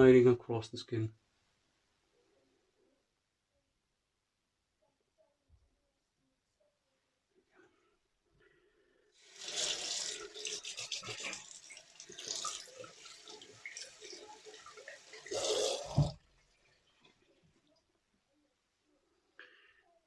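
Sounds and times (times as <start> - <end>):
tap water splashing into sink: 9.4 - 16.4.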